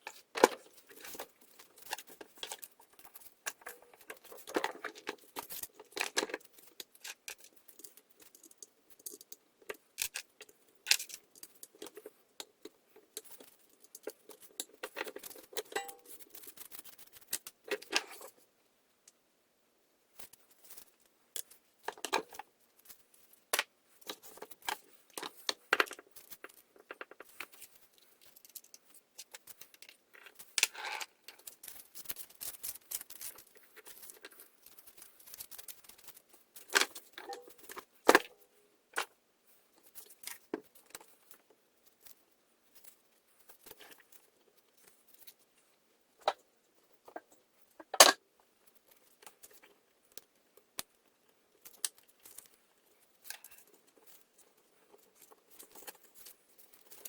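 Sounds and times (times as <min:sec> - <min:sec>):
small tools clicking and tapping: 0:00.0 - 0:18.4.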